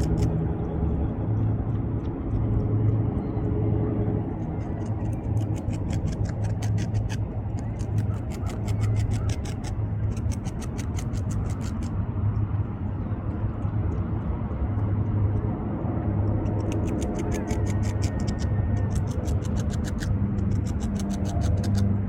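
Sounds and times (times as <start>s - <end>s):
beaver gnawing bark: 0.0s - 0.4s, 4.4s - 12.1s, 16.3s - 22.0s
low rumble: 0.0s - 22.0s.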